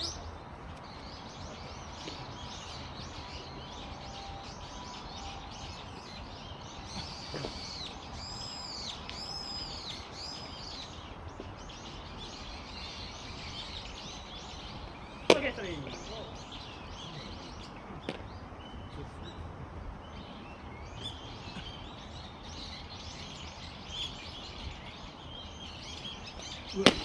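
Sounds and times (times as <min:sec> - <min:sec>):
arching bird calls: 0:00.0 - 0:19.5
low outdoor background: 0:00.0 - 0:27.0
small birds chirping: 0:00.0 - 0:27.0.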